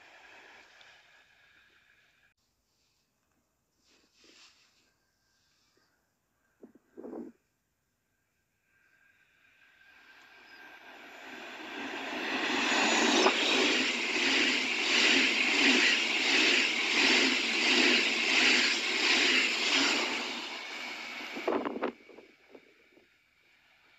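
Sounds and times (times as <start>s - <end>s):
passenger train passing at speed: 0.0s - 2.3s, 8.6s - 23.9s.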